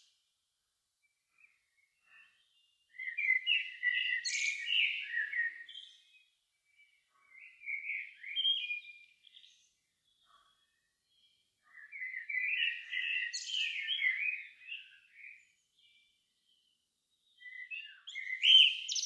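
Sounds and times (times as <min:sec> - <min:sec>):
songbird singing: 0:01.0 - 0:19.0.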